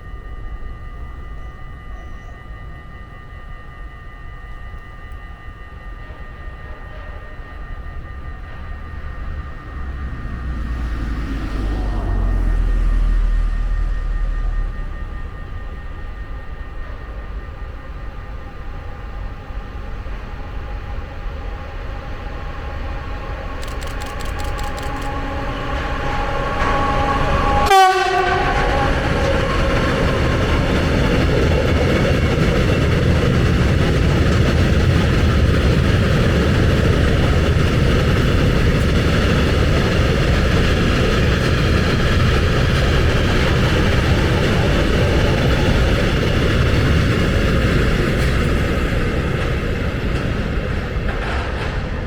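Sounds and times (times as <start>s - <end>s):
electric locomotive passing: 0.0s - 52.0s
tank wagons rumbling and clattering: 28.6s - 52.0s.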